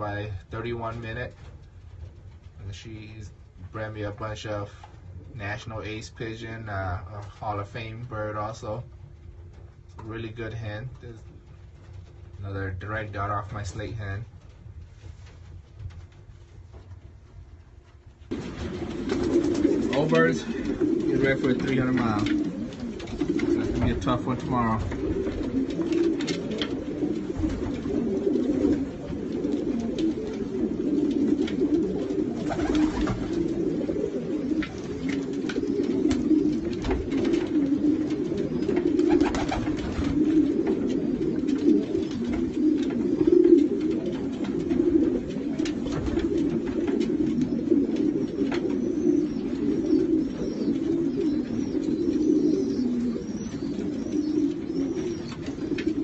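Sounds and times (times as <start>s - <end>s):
pigeons cooing: 0.0s - 56.0s.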